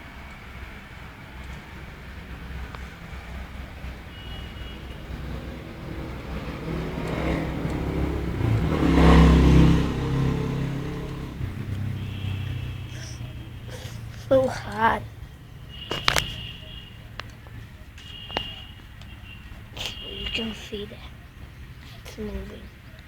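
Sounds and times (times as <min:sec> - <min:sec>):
vehicle engine passing by: 0:00.0 - 0:17.9.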